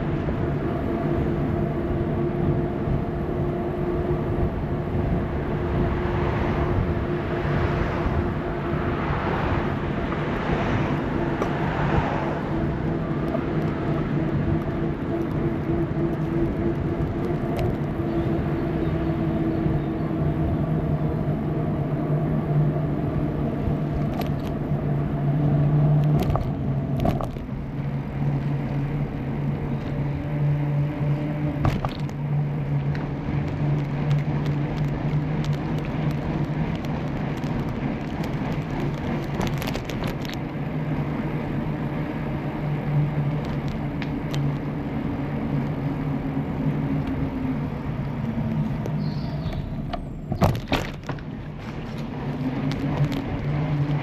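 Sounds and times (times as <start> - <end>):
wind on microphone: 0.0 - 27.5
tyres rolling rumble: 0.0 - 54.0.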